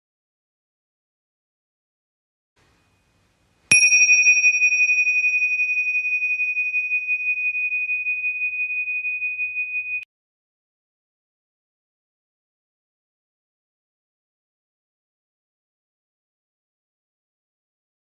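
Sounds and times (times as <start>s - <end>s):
bell ringing: 3.7s - 10.0s.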